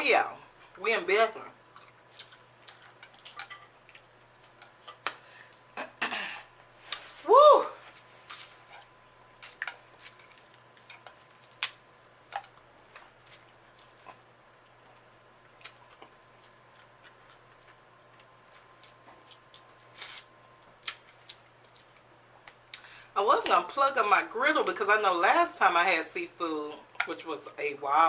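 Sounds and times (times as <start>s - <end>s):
crab legs cracking: 8.3s - 14.0s.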